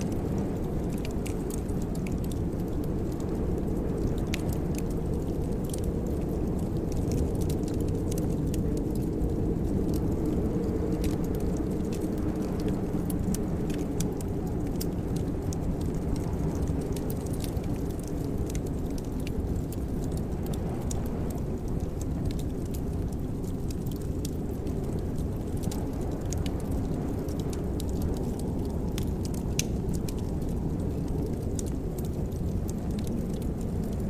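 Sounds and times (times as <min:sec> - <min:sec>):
fire low rumble: 0:00.0 - 0:34.0
wood fire crackling and popping: 0:00.0 - 0:34.0.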